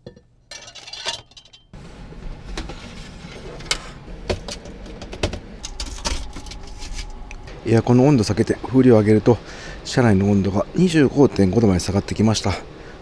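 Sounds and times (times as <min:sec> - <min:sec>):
steady low hum: 0:01.8 - 0:13.0
clicks and knocks of objects: 0:02.3 - 0:07.4.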